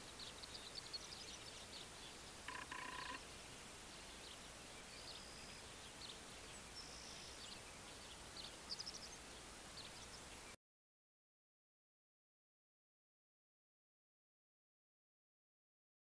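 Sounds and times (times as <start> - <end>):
faint birds chirping and whistling: 0.0 - 10.6
outdoor background hiss: 0.0 - 10.6.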